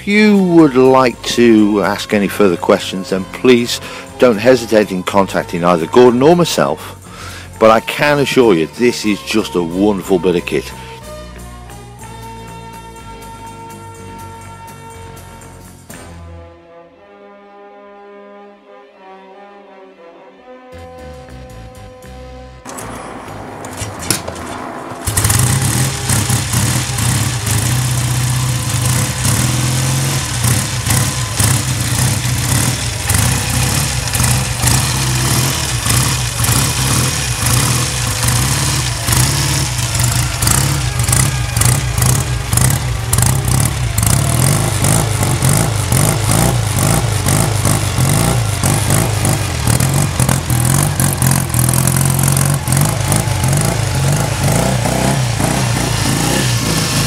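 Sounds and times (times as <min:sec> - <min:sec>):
motorcycle engine running: 0:22.7 - 0:57.0.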